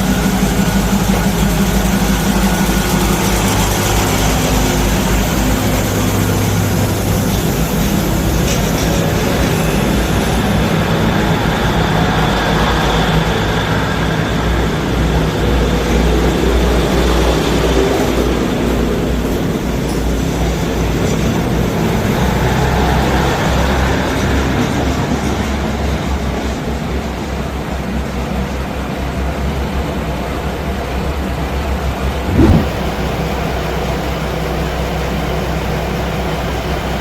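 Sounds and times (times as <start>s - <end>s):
diesel train engine rumble: 0.0s - 20.9s.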